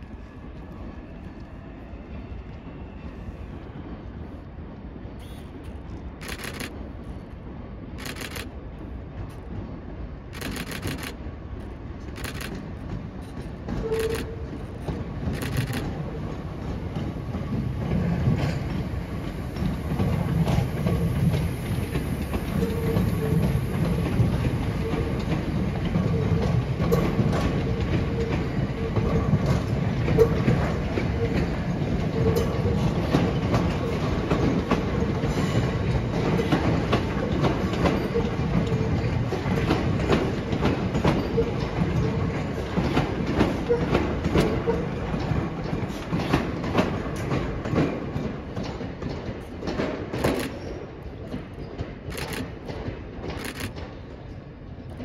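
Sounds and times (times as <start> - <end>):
train rumble: 0.0 - 55.0
train wheels clattering over joints: 12.0 - 55.0.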